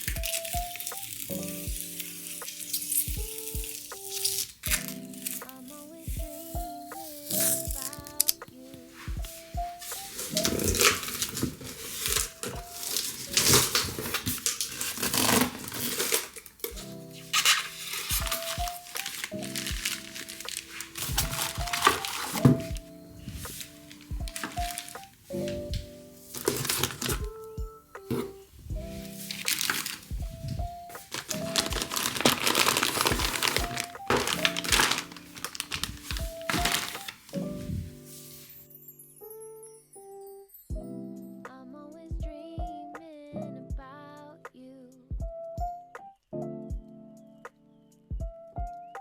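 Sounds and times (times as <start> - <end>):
packaging rustling and tearing: 0.0 - 8.4, 9.0 - 38.1
background music: 0.0 - 49.0.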